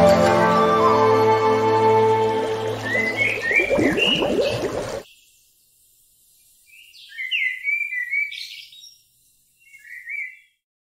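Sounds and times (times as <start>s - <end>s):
bird chirping: 2.6s - 10.6s.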